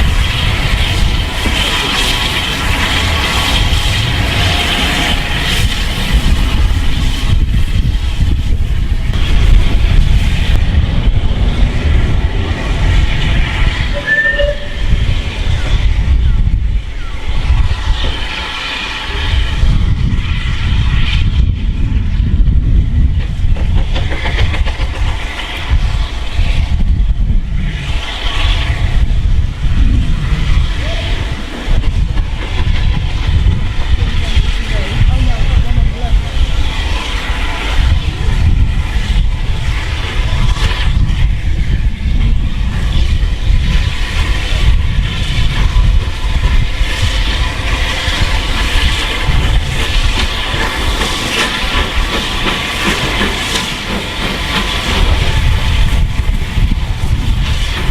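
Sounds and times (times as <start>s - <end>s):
steam hiss: 0.0s - 57.9s
train rumbling on rails: 0.0s - 57.9s.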